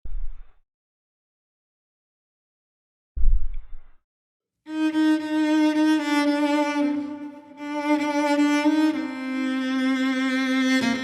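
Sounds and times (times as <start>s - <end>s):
bowed cello notes: 4.7s - 11.0s.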